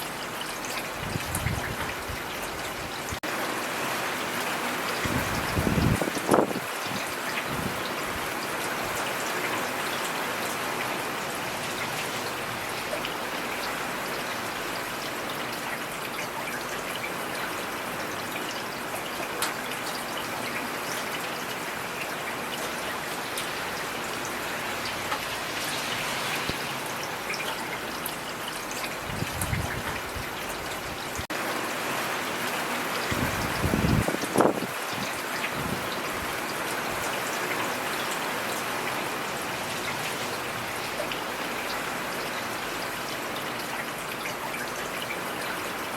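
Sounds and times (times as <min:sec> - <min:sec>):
steady rainfall: 0:00.0 - 0:45.9.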